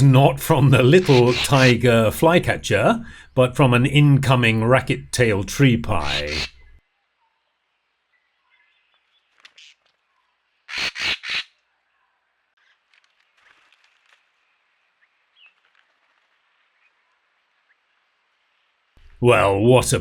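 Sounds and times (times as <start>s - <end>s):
bird harsh call: 0.9s - 1.8s, 5.9s - 6.8s, 10.7s - 11.5s
small birds chirping: 14.4s - 18.6s.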